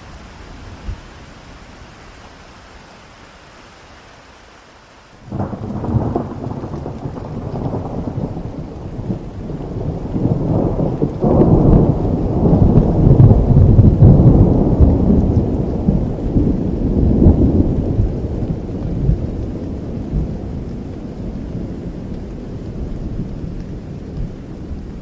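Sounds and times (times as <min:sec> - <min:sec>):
steady rain: 0:00.0 - 0:25.0
rolling thunder: 0:05.3 - 0:25.0.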